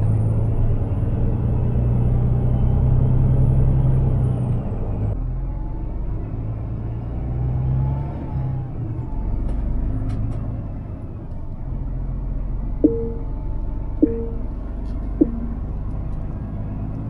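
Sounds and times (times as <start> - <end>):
truck diesel engine droning: 0.0 - 17.0
short electronic beeps: 12.8 - 13.4, 14.0 - 14.6, 15.2 - 15.8.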